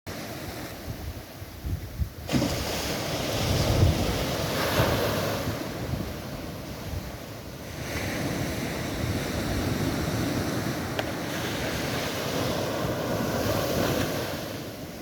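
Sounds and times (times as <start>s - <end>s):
surf: 0.1s - 15.0s
wind buffeting microphone: 0.6s - 15.0s.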